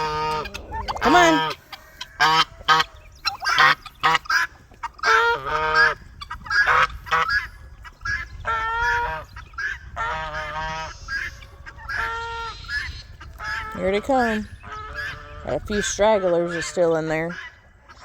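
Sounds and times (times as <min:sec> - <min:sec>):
geese honking: 0:00.0 - 0:18.0.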